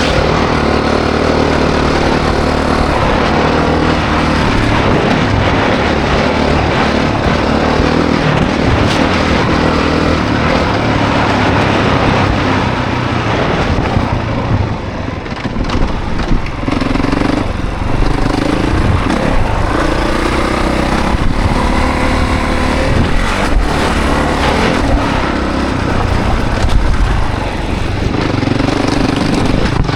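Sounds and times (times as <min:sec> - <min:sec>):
dirt bike engine revving: 0:00.0 - 0:29.9
wind noise: 0:00.0 - 0:29.9.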